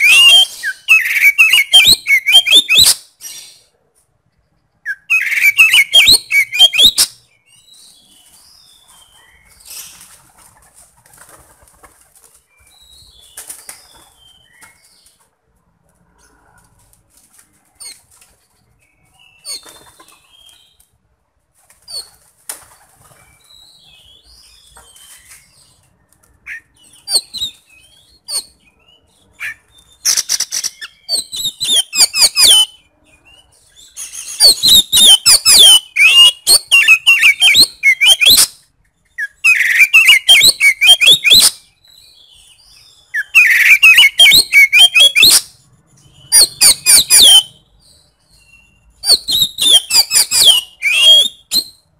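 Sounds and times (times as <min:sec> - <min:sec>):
magpie-robin singing: 0:00.0 - 0:03.7, 0:04.8 - 0:10.0, 0:18.8 - 0:20.8, 0:23.0 - 0:51.9.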